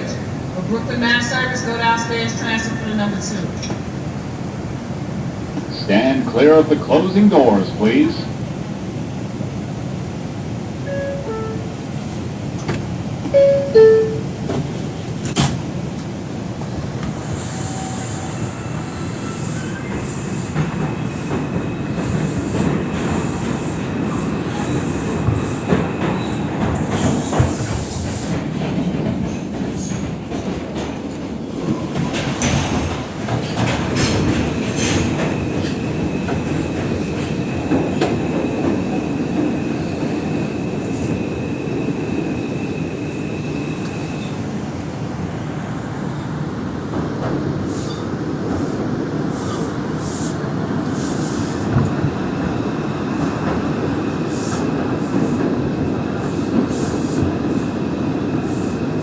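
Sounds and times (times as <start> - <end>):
train wheels rumbling on rail: 0.0 - 59.0
two-note door chime: 10.9 - 11.7, 13.4 - 14.4.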